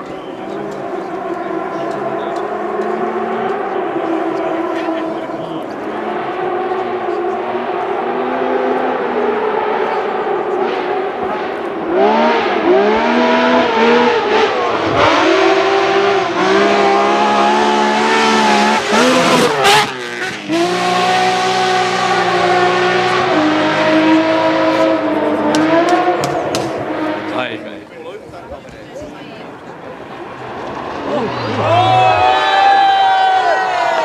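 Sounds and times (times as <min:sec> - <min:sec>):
rally car engine revving: 0:00.0 - 0:34.0
exhaust cracks: 0:24.3 - 0:28.8, 0:29.5 - 0:32.8.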